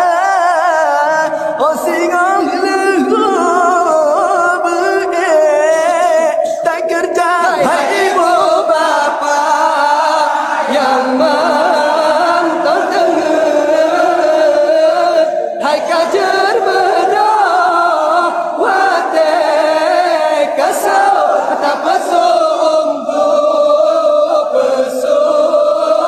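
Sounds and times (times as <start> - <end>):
group of voices chanting: 7.4 - 26.0.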